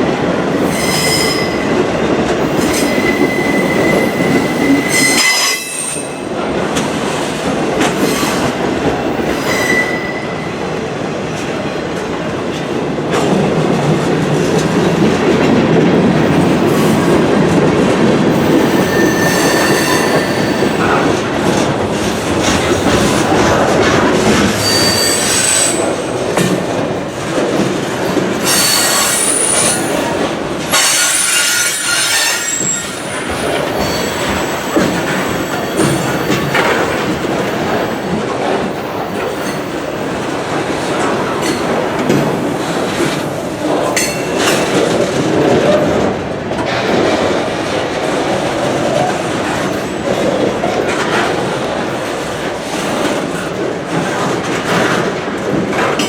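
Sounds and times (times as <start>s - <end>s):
freight train rumbling past: 0.0s - 56.0s
high-pitched wheel squeal: 0.6s - 1.6s, 2.6s - 6.1s, 9.4s - 10.3s, 18.6s - 20.8s, 24.6s - 25.9s, 28.4s - 30.0s, 30.8s - 36.5s.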